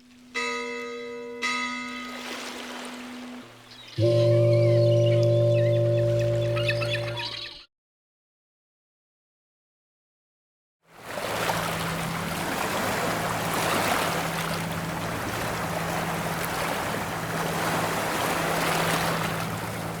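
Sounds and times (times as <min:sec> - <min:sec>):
water rushing along hull: 0:00.0 - 0:07.4, 0:10.9 - 0:20.0
low engine hum: 0:04.0 - 0:07.3, 0:11.2 - 0:20.0.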